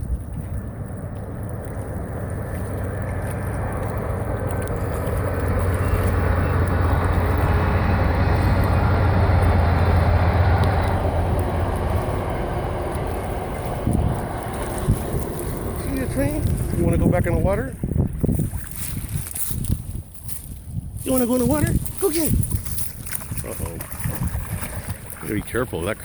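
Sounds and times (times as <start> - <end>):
steady low drone: 0.0 - 18.2
train rumbling past: 2.8 - 17.8.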